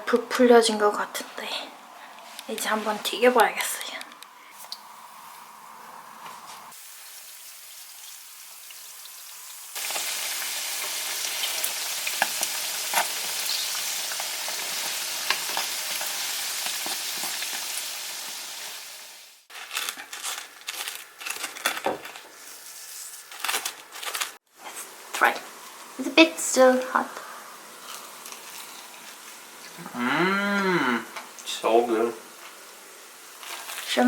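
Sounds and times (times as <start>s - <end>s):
dough sizzling in hot oil: 6.7s - 20.3s, 31.2s - 34.0s.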